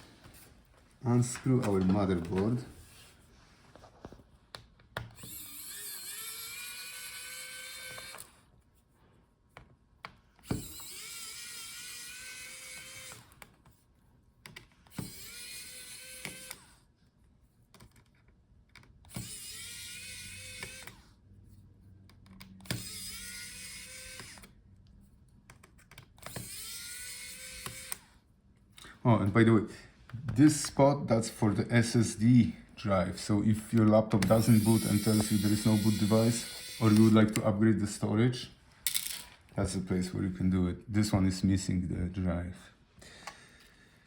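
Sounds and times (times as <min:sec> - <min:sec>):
electric screwdriver motor whine: 0:05.1 - 0:08.4, 0:10.4 - 0:13.5, 0:14.9 - 0:16.9, 0:19.1 - 0:21.1, 0:22.4 - 0:24.6, 0:26.2 - 0:28.2, 0:34.2 - 0:37.4.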